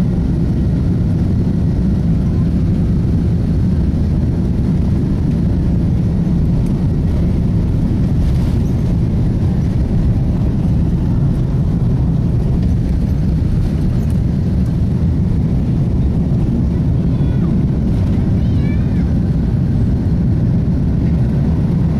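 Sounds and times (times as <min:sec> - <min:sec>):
jet engines low rumble: 0:00.0 - 0:21.9
rushing air: 0:02.6 - 0:18.4.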